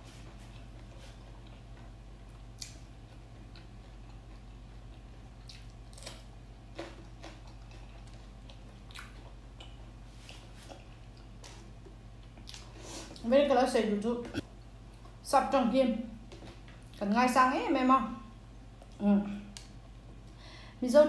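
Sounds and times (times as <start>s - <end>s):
person chewing food: 0.0s - 13.2s
steady low hum: 0.0s - 21.0s.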